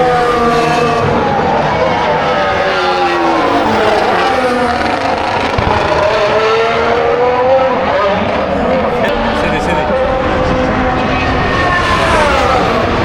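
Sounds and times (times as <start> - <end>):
racing cars passing at speed: 0.0 - 13.0.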